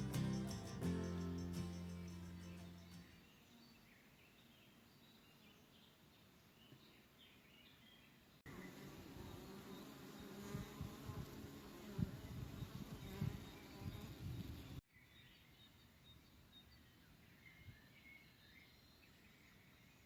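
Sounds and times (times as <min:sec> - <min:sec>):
high chirps: 0:00.0 - 0:03.4
insect buzzing: 0:08.5 - 0:14.8.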